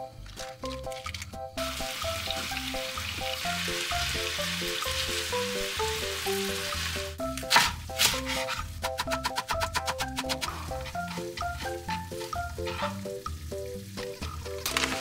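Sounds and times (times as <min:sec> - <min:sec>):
meat sizzling in a frying pan: 0:01.6 - 0:07.2, 0:10.8 - 0:15.0.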